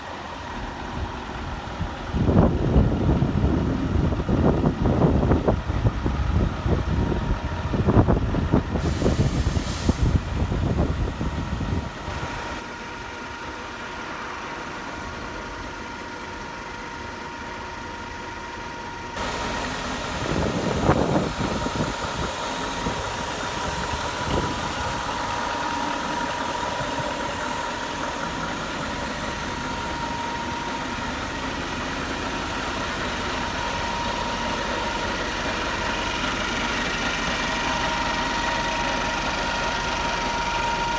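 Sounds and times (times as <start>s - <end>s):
diesel engine idling: 0.0s - 40.9s
wind buffeting microphone: 1.0s - 12.6s, 19.2s - 30.6s.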